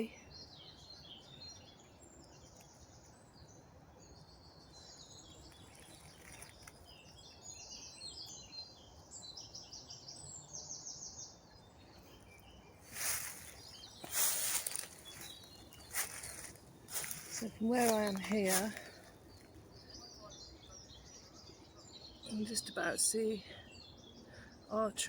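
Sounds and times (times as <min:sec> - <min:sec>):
birds singing: 0:00.0 - 0:25.0
rustling in undergrowth: 0:05.0 - 0:07.6, 0:12.2 - 0:19.9.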